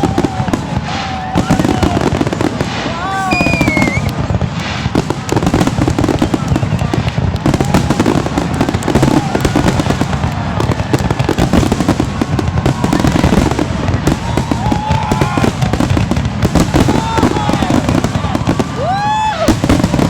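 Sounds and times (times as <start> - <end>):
fireworks banging and crackling: 0.0 - 20.0
gliding whistle tones: 3.2 - 4.1.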